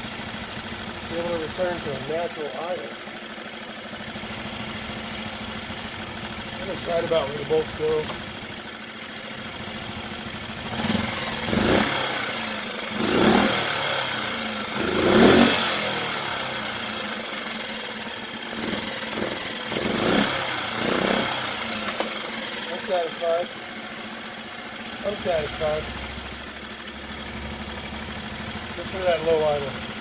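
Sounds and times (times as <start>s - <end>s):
outboard engine revving: 1.0s - 2.8s, 10.5s - 17.3s, 18.5s - 22.2s, 24.9s - 30.0s.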